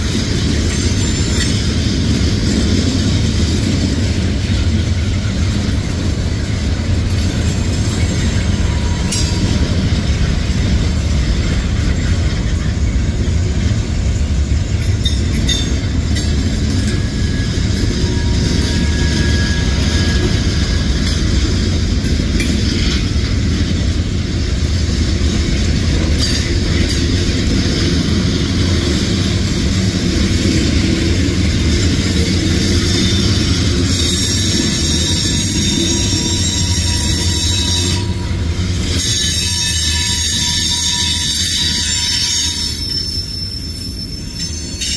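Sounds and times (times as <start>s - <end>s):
wheels clicking over rail joints: 0.0s - 43.0s
steel wheels rumbling on rail: 0.0s - 44.9s
faint high wheel squeal: 0.6s - 1.8s, 7.7s - 9.9s, 11.5s - 21.5s, 31.6s - 44.9s.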